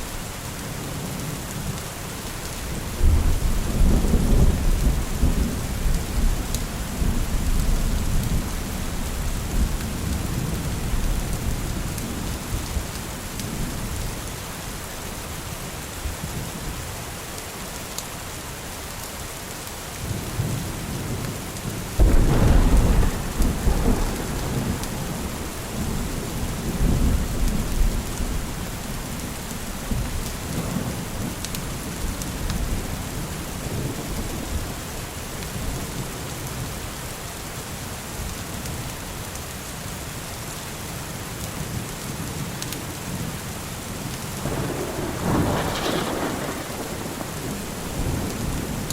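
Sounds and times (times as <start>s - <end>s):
heavy rain: 0.0s - 48.9s
low thunder rumble: 2.8s - 14.1s, 22.0s - 36.0s, 44.4s - 48.9s
thunderclap: 22.0s - 28.6s, 44.4s - 48.9s.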